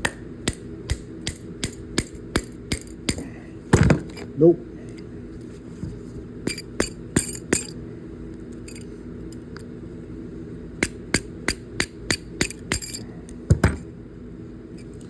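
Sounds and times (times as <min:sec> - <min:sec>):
hammer tapping metal shaft: 0:00.0 - 0:03.3, 0:06.5 - 0:07.8, 0:10.8 - 0:13.8.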